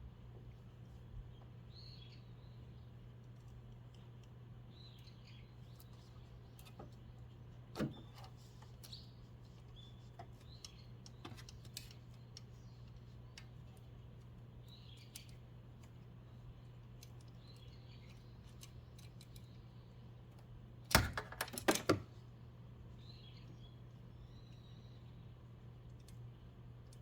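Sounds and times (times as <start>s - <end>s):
bird chirps: 1.3s - 3.0s, 14.6s - 15.4s, 23.0s - 25.4s
faint clicks and knocks: 3.1s - 20.5s.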